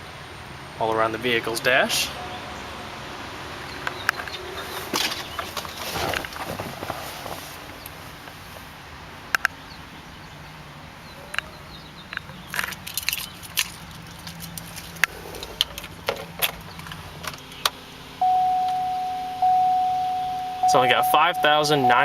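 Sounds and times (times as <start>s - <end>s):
faint steady hum: 18.0s - 22.0s
electronic warning tone: 18.2s - 22.0s.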